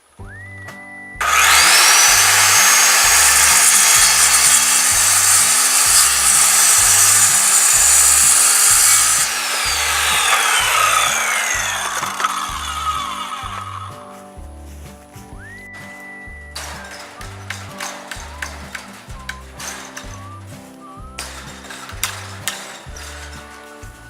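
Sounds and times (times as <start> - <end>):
power saw cutting wood: 1.2 - 14.0, 16.6 - 20.2, 21.2 - 23.6
background music with steady beat: 9.2 - 24.0.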